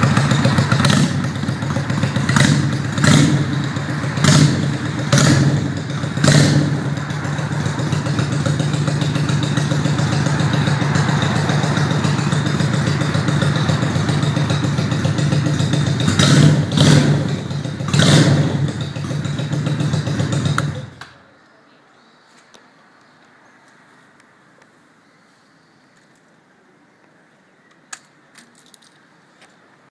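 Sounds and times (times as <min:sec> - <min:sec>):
motorcycle engine idling and revving: 0:00.0 - 0:21.4.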